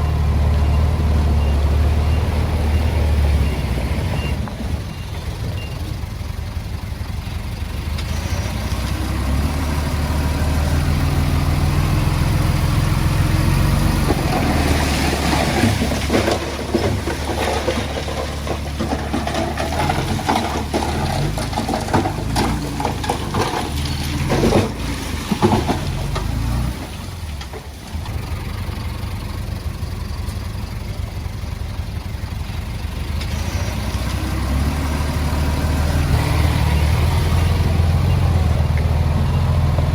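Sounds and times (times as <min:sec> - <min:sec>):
bulldozer diesel engine running: 0:00.0 - 0:39.9
metal clanks and knocks: 0:14.1 - 0:26.5.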